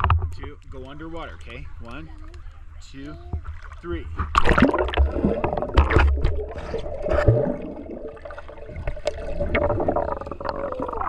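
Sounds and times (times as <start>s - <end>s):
water splashing and gurgling: 3.2s - 11.0s.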